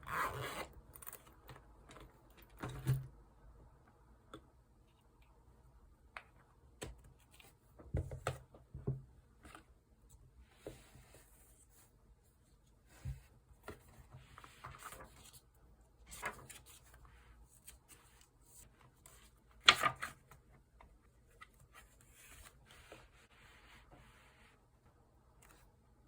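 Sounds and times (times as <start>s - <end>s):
paper rustling: 16.1s - 20.4s.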